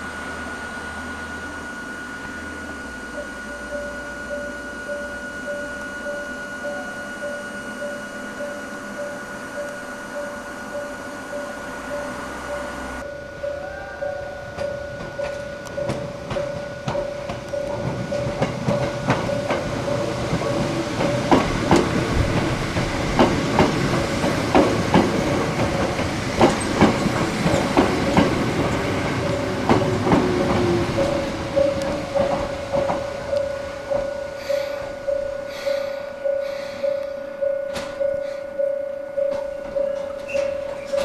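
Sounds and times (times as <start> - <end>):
steady pulsing tone: 0.0 - 26.4, 27.1 - 41.0
falling whine: 0.0 - 37.4
train wheels clacking over rail joints: 14.5 - 35.8.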